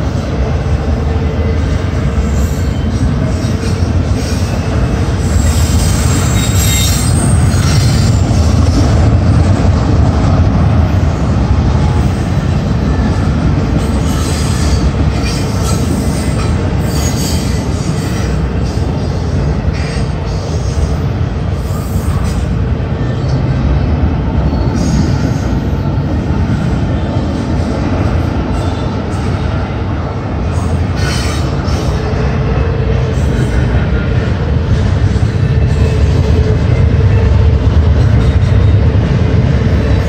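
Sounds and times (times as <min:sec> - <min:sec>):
train wheels rumbling on rails: 0:00.0 - 0:40.0
high-pitched wheel squeals: 0:02.3 - 0:08.4.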